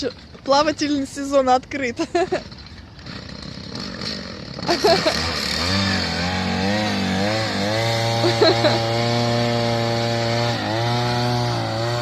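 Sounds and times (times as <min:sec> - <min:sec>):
small boat motor running: 0:00.0 - 0:12.0.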